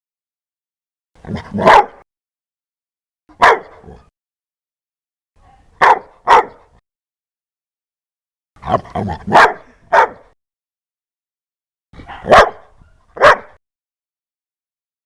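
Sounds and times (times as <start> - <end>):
dog barking: 1.3 - 2.0, 3.4 - 4.1, 5.4 - 6.8, 8.6 - 10.4, 12.0 - 13.6.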